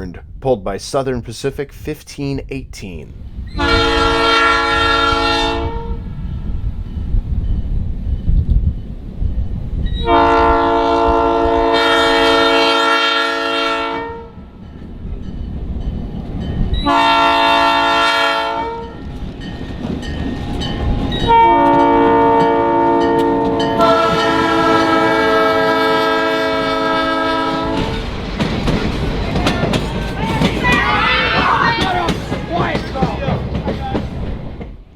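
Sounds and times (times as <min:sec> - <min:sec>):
locomotive air horn: 0:03.6 - 0:06.1, 0:10.0 - 0:14.4, 0:16.8 - 0:19.0, 0:21.3 - 0:28.0.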